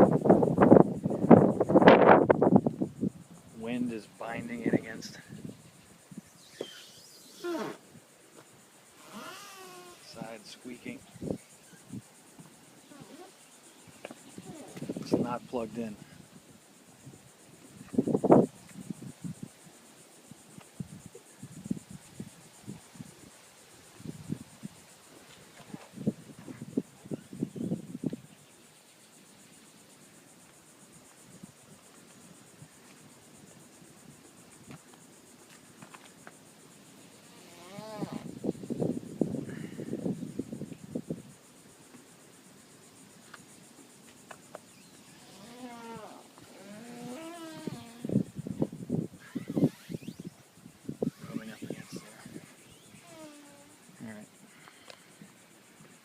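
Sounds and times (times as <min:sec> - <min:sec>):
insects trilling: 0:00.0 - 0:56.0
boat creaking against dock: 0:45.2 - 0:48.1
faint clicks: 0:54.6 - 0:55.0.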